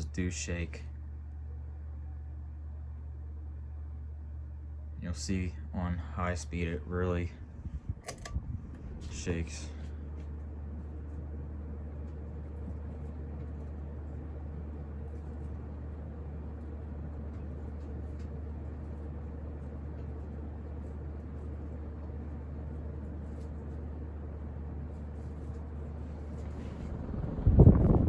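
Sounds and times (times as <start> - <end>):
ceiling fan motor humming: 0.0 - 28.0
air rushing from fan blades: 5.0 - 28.0.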